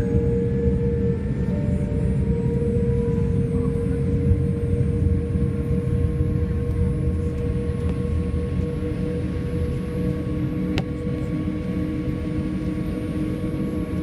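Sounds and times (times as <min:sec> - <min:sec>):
jet engine rumble in cabin: 0:00.0 - 0:14.0.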